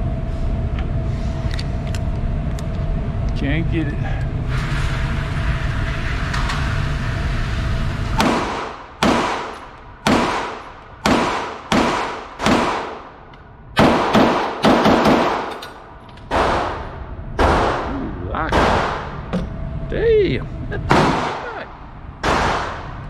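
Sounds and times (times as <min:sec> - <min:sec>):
low rumble: 0:00.0 - 0:23.0
pistol shots with echo: 0:08.2 - 0:13.2, 0:13.8 - 0:15.6, 0:16.3 - 0:19.2, 0:20.9 - 0:21.6, 0:22.2 - 0:23.0.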